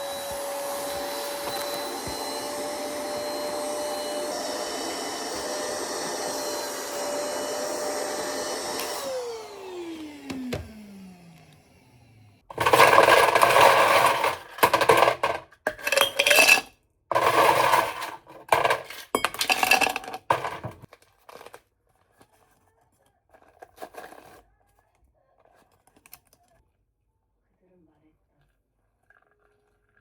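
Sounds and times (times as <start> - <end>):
hard objects clattering: 12.5 - 21.6.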